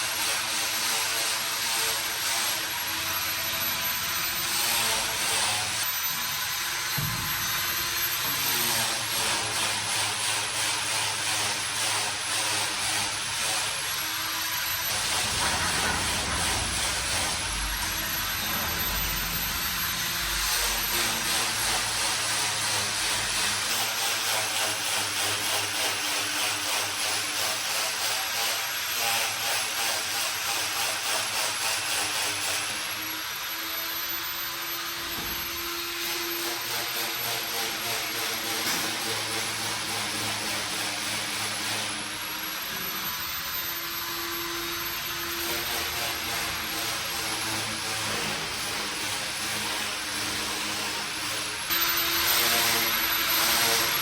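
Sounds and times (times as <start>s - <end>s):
power tool whining: 0.0s - 25.0s, 32.6s - 54.0s.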